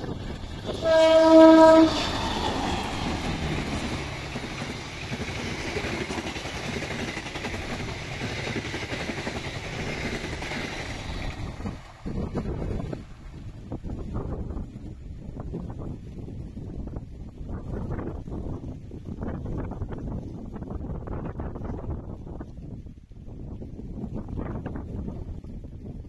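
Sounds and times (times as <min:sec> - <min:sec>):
train wheels rumbling on rails: 0:00.0 - 0:22.3
locomotive horn blast: 0:00.7 - 0:04.0.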